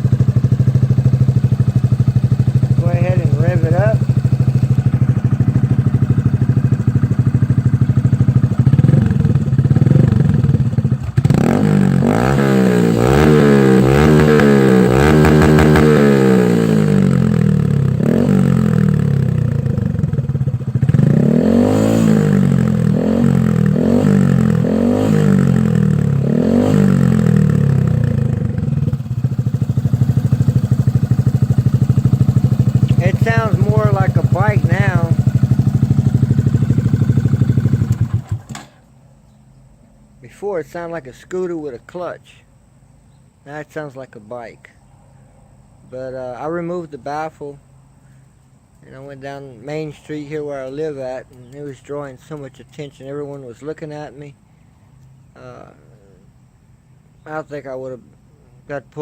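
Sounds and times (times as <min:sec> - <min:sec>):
motorcycle engine idling and revving: 0:00.0 - 0:40.1.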